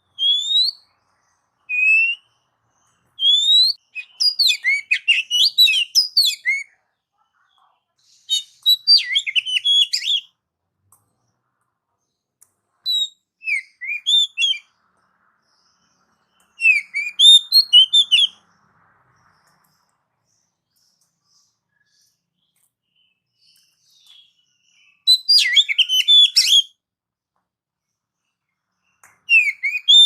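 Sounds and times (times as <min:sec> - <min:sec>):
bird singing whistled notes: 0:00.0 - 0:06.8, 0:08.2 - 0:10.4, 0:12.8 - 0:14.8, 0:15.4 - 0:18.5, 0:19.2 - 0:26.8, 0:28.8 - 0:30.0.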